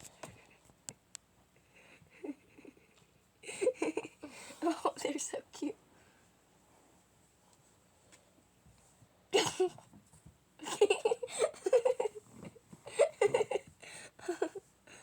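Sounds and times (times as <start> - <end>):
person giggling and laughing: 1.8 - 4.8, 10.6 - 14.7.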